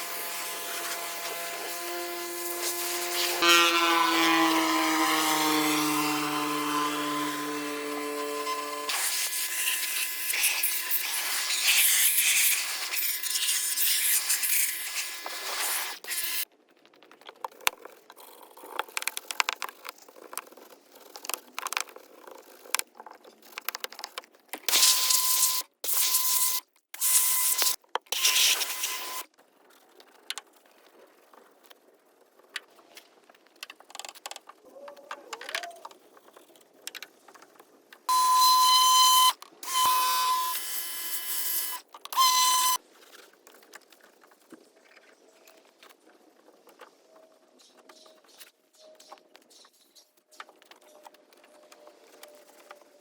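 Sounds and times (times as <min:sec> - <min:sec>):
high whistle: 0:38.1 - 0:42.8.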